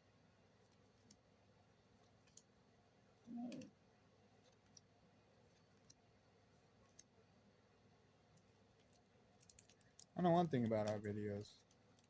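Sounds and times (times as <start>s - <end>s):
voice murmuring: 3.3s - 3.7s
trading cards clicking: 8.8s - 12.0s.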